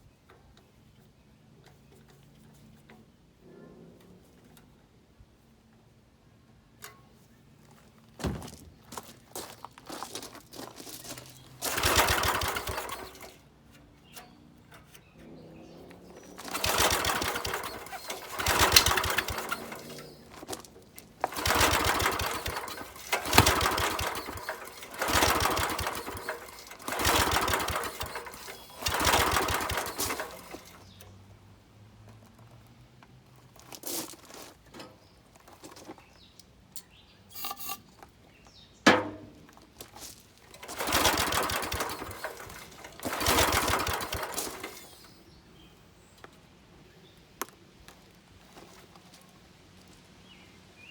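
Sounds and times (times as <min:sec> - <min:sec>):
small engine pull-start cranking: 0:11.1 - 0:31.2, 0:40.4 - 0:45.3.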